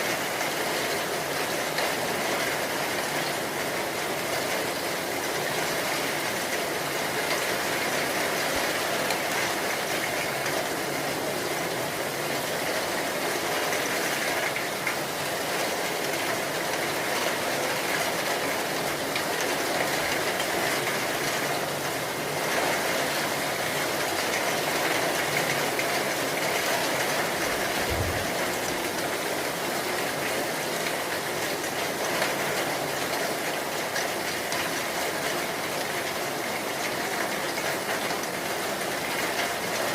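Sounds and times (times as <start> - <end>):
heavy rain hissing: 26.3 - 31.1.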